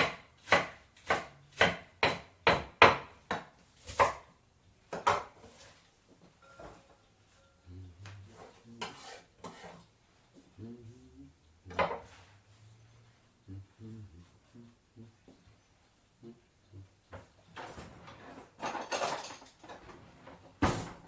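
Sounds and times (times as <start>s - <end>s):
knife chopping on cutting board: 0.0s - 4.3s, 4.9s - 5.4s
dishes and cutlery clinking: 6.3s - 7.6s, 17.6s - 20.0s.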